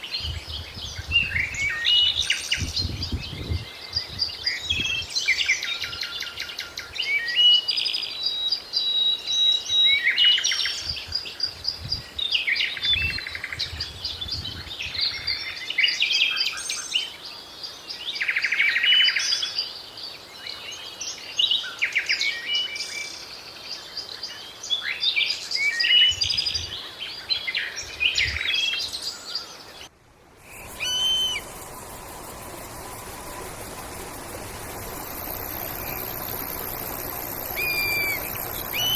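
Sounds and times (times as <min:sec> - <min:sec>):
songbirds singing and chirping: 0:00.0 - 0:38.9
steady hiss: 0:30.0 - 0:38.9
short bird calls: 0:30.5 - 0:31.9, 0:37.4 - 0:38.9.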